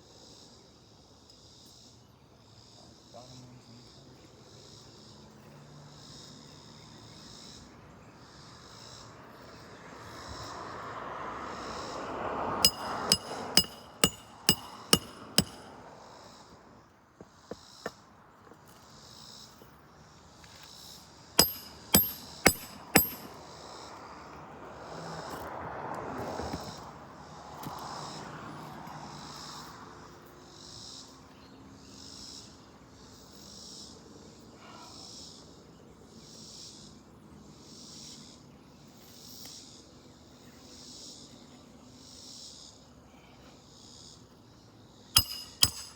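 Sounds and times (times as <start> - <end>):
insects chirring in pulses: 0.0 - 45.9
hammer blows with metallic ring: 12.6 - 15.7, 21.4 - 23.4, 45.2 - 45.9.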